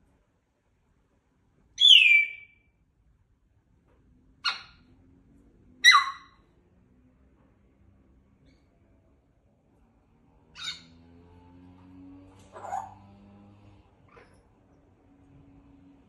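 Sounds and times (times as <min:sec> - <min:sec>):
parrot calling: 0:01.8 - 0:02.6, 0:04.4 - 0:04.8, 0:05.8 - 0:06.4, 0:10.6 - 0:11.0, 0:12.5 - 0:13.0.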